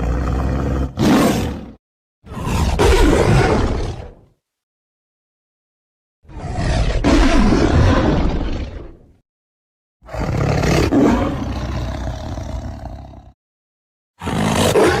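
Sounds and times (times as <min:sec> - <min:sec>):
tiger roaring: 0:00.0 - 0:04.3, 0:06.3 - 0:09.1, 0:10.0 - 0:13.3, 0:14.2 - 0:15.0.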